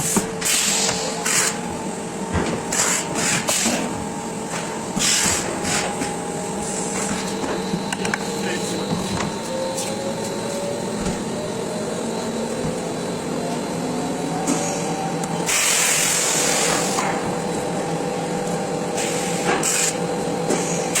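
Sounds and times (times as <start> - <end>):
molding machine humming: 0.0 - 21.0
loud hissing bursts: 15.5 - 17.0.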